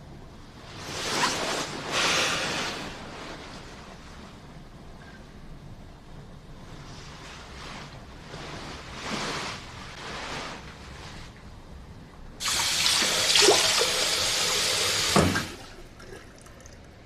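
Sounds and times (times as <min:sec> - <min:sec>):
water running: 0:12.4 - 0:16.8.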